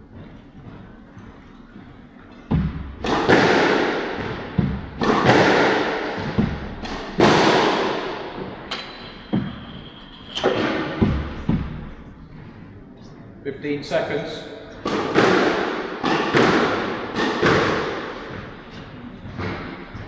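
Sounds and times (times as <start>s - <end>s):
squash ball thwacks echoing: 2.5s - 12.1s, 14.4s - 19.8s.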